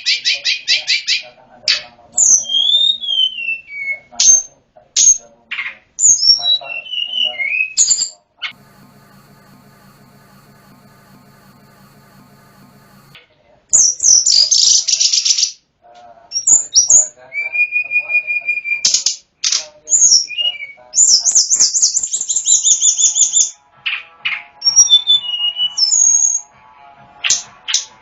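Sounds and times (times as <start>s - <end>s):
songbird singing trills and whistles: 2.2s - 4.5s, 6.0s - 8.2s, 16.4s - 19.0s, 19.9s - 23.5s, 24.7s - 26.4s.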